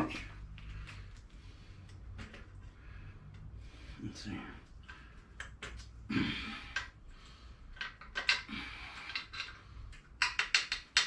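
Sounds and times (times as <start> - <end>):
metal parts clinking: 7.8 - 9.6.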